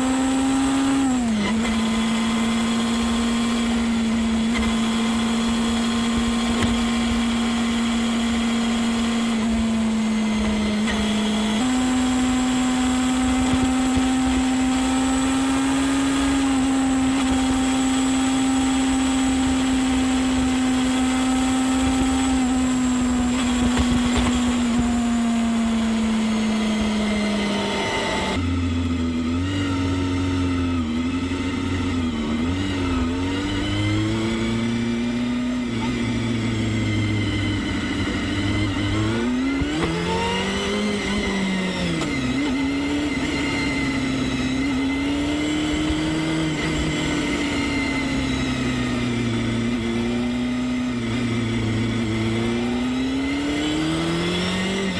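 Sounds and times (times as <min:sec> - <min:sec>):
motorcycle engine high revs: 0:00.0 - 0:54.9.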